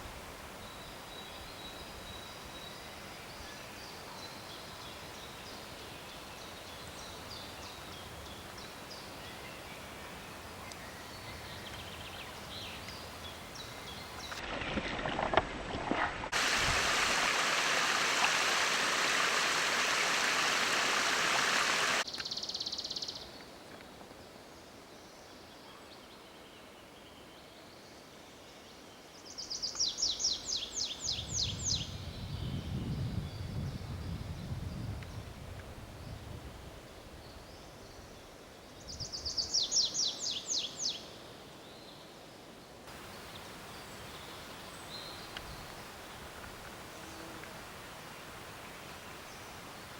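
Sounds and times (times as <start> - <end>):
running water rushing: 12.3 - 22.1, 42.9 - 49.9.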